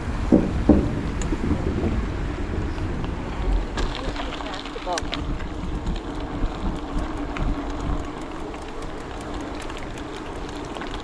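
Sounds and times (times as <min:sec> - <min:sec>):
bicycle riding hum: 0:00.0 - 0:11.0
bicycle ticking: 0:00.0 - 0:11.0
wind rumbling on microphone: 0:00.0 - 0:11.0.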